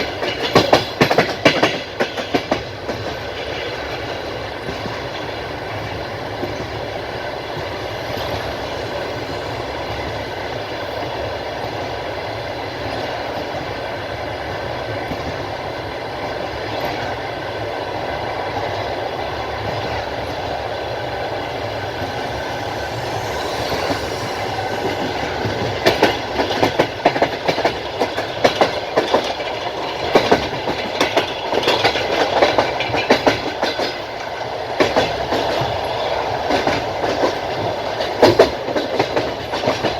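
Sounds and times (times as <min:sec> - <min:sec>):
wheels clacking over rail joints: 0:00.0 - 0:06.8, 0:18.2 - 0:39.9
train wheels rumbling on rails: 0:00.0 - 0:39.9.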